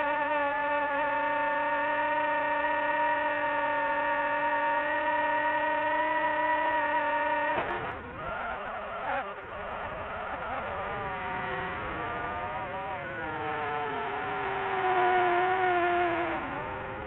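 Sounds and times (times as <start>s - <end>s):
drone propellers whining: 6.0s - 17.0s.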